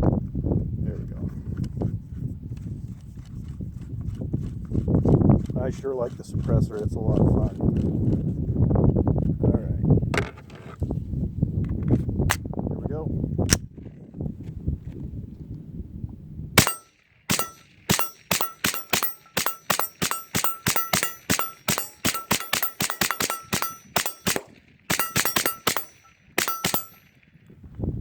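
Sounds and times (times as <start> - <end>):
suppressed rifle shots: 16.6 - 27.3.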